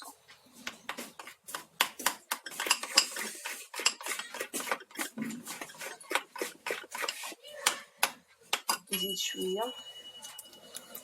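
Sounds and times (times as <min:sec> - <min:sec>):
spoon scraping a bowl: 0:02.4 - 0:07.4.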